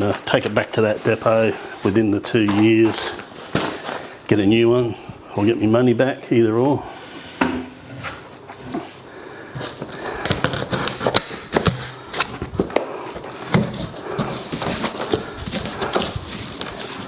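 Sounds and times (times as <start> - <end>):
cardboard packaging rustling: 9.6 - 17.0.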